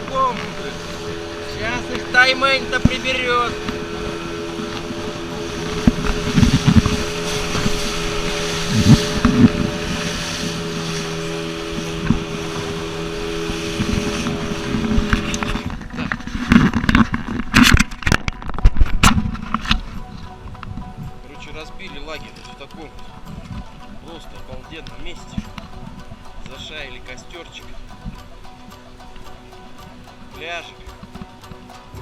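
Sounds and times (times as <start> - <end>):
motor running: 0.0 - 15.9
wind noise on microphone: 0.0 - 30.3.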